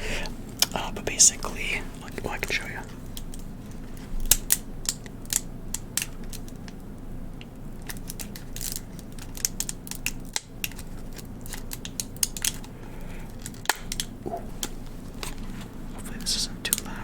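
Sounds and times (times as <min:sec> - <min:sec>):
plastic package crinkling: 0:02.4 - 0:06.8, 0:07.8 - 0:17.0.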